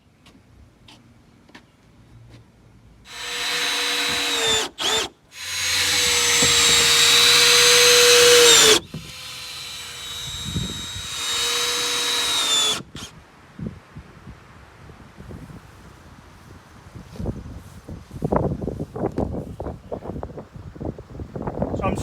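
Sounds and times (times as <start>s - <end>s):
power drill running: 3.1s - 13.1s.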